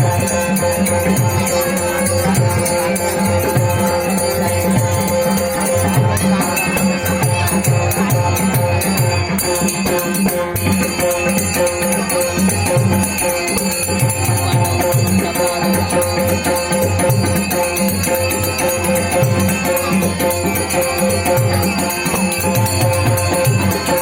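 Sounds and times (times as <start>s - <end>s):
hand drum with bending deep notes: 0.0s - 24.0s
jingling percussion: 0.0s - 24.0s.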